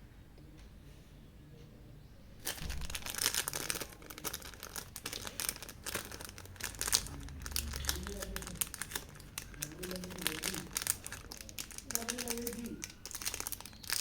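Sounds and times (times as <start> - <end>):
packaging crinkling and rustling: 2.4 - 14.0
rapid irregular crackle: 2.4 - 14.0.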